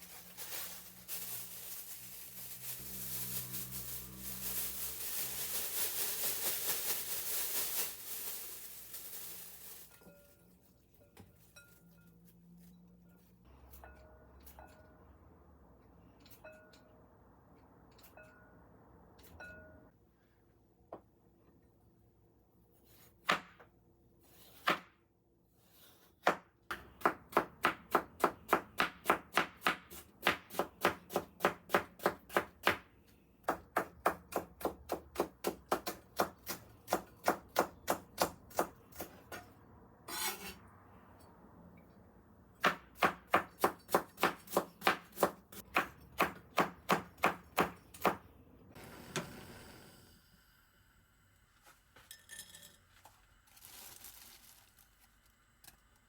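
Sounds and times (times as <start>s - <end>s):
knife chopping on cutting board: 42.6s - 48.2s.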